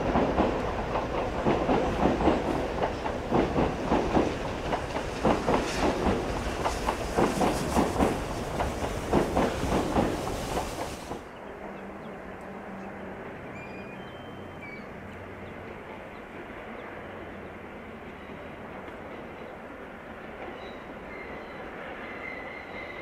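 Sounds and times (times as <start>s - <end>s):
train wheels rumbling on rail: 0.0s - 13.6s.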